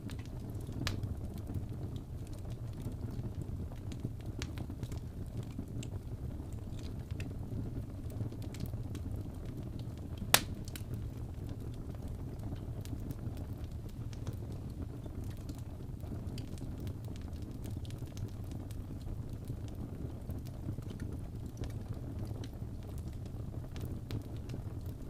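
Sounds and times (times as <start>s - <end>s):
fire crackles: 0.0s - 25.0s
low fire rumble: 0.0s - 25.0s
loud sharp pop: 10.3s - 10.6s.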